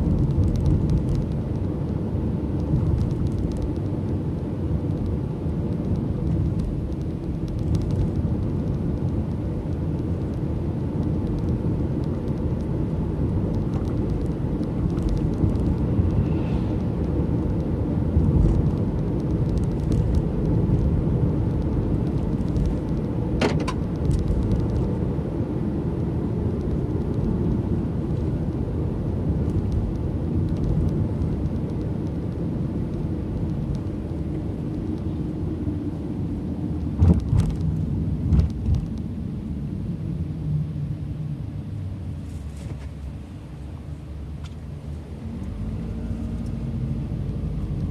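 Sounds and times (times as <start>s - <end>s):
car engine and tyres rumbling: 0.0s - 47.9s.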